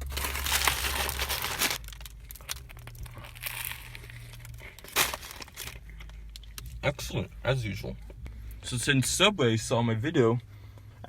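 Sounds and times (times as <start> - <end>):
paper wrapper crinkling: 0.0 - 6.5
steady low hum: 0.0 - 11.0.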